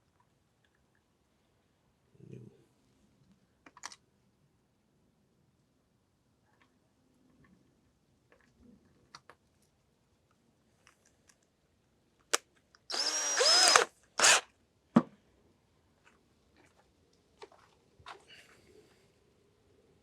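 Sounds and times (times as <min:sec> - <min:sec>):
power drill motor whine: 0:12.9 - 0:14.4.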